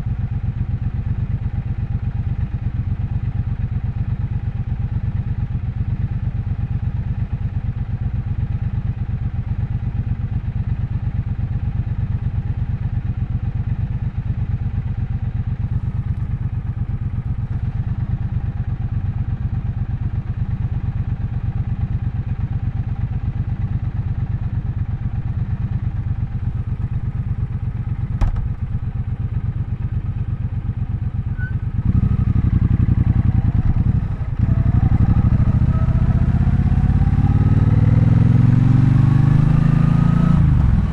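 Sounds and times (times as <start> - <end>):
motorcycle engine accelerating: 24.5 - 40.9.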